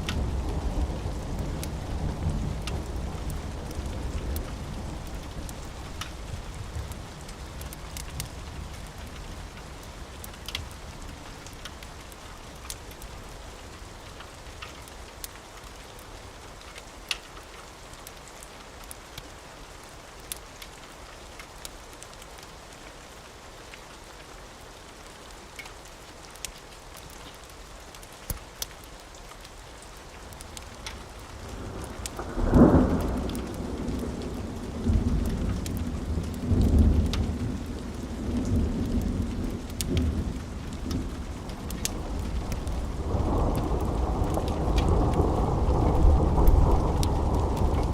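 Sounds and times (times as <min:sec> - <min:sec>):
steady rain: 0:00.0 - 0:47.9
thunder rumbling: 0:31.4 - 0:47.9
loud thunderclap: 0:40.9 - 0:47.9.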